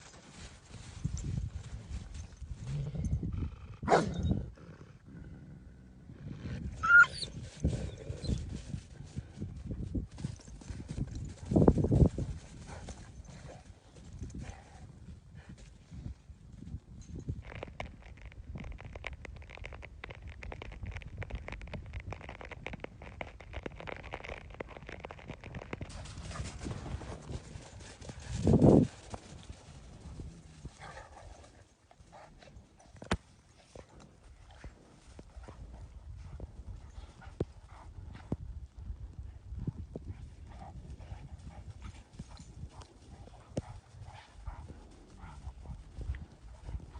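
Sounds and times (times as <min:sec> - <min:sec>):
dog barking: 0:03.9 - 0:04.2.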